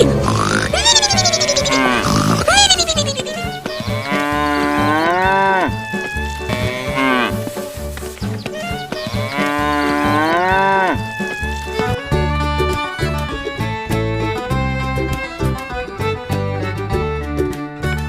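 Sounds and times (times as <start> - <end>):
cow mooing: 3.8 - 5.7, 9.1 - 11.0.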